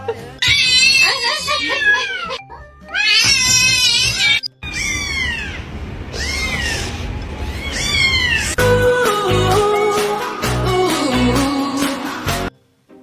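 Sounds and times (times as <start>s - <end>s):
cat meowing: 0.4s - 8.6s
cat yowling: 0.4s - 8.6s.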